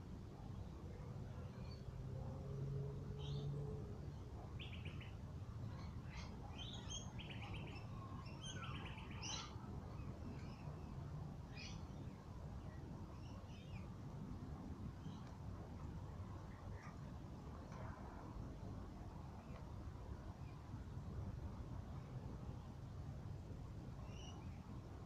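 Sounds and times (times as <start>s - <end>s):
low steady rumble: 0.0s - 25.0s
bird chirps and trills: 4.6s - 10.7s.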